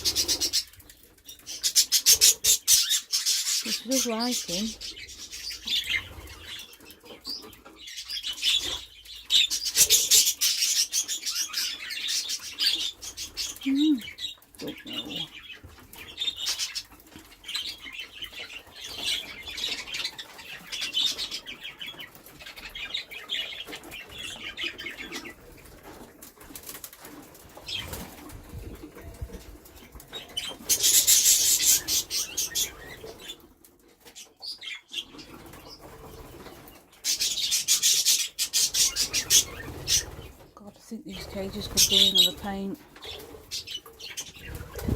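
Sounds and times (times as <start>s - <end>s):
budgerigars chattering: 0.0s - 0.7s, 1.5s - 6.7s, 30.2s - 33.4s
wings flapping: 0.0s - 0.9s, 23.6s - 33.3s, 41.2s - 44.9s.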